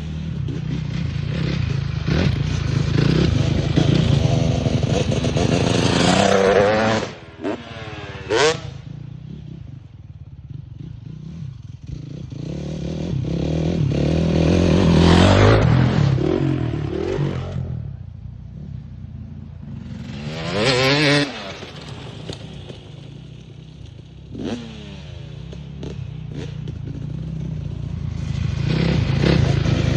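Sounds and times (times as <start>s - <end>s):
dirt bike engines idling: 0.0s - 12.3s, 25.1s - 29.9s.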